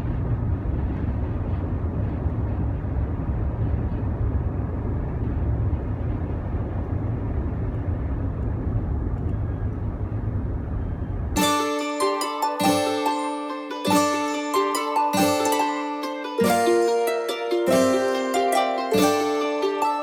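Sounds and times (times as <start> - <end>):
steady low rumbling: 0.0 - 11.4
music: 11.4 - 20.0.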